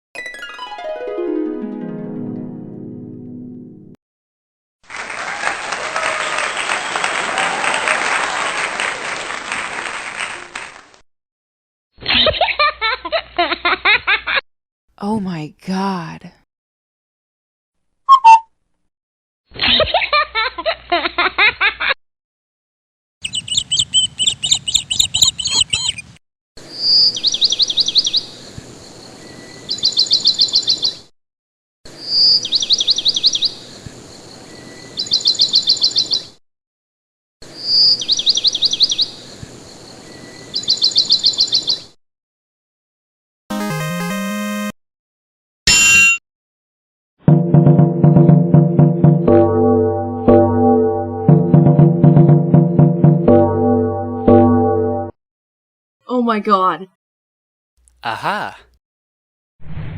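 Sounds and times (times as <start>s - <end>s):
crowd clapping: 4.8s - 11.0s
person's voice: 15.0s - 16.4s, 57.9s - 58.8s
birds chirping: 23.2s - 31.1s, 31.9s - 36.3s, 37.5s - 42.0s.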